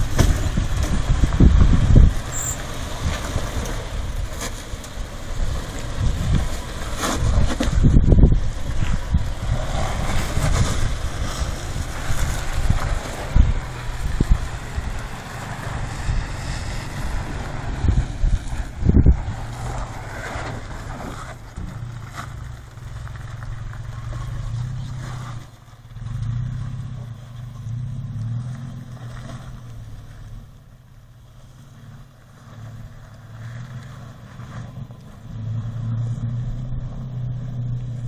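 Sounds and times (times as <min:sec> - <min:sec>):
wind buffeting microphone: 0:00.0 - 0:30.4
vehicle engine running: 0:00.0 - 0:38.0.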